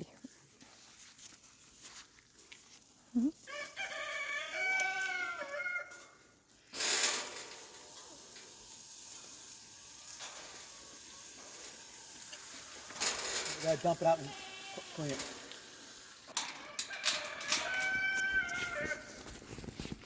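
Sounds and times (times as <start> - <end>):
rooster crowing: 3.5 - 6.2, 16.5 - 19.2
faint steady hiss: 6.6 - 16.6.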